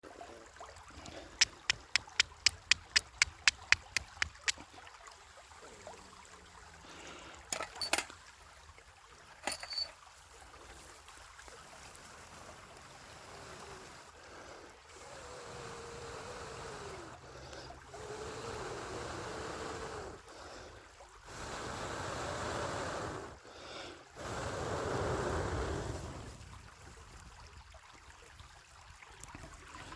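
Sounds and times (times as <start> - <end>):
steel striking flint: 7.5 - 8.1, 9.4 - 10.0.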